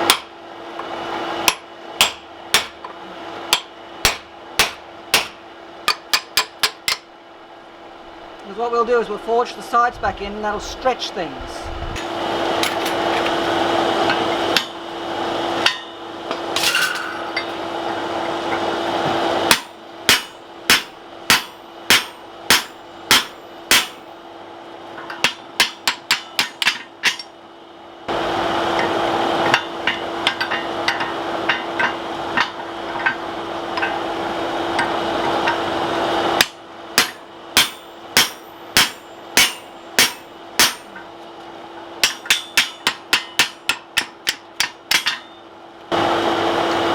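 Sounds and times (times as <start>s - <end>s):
hammer striking steel on anvil: 0.0s - 0.3s, 1.4s - 7.1s, 14.1s - 14.8s, 15.6s - 17.7s, 19.4s - 24.1s, 25.0s - 27.4s, 28.7s - 35.7s, 36.4s - 41.1s, 42.0s - 45.5s.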